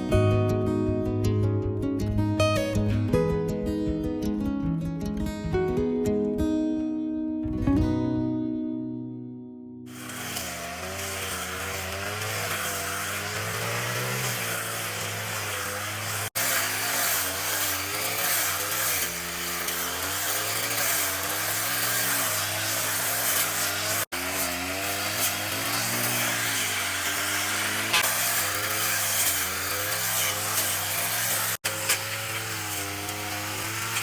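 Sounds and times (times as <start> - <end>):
grass cutter engine running: 9.9 - 34.0.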